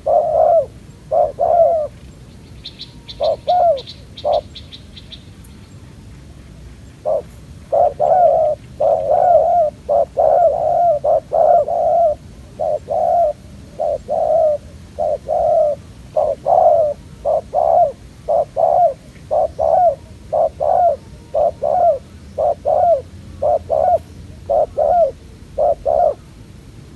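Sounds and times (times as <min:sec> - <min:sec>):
doves cooing: 0:00.0 - 0:02.0, 0:03.0 - 0:04.6, 0:07.0 - 0:26.4.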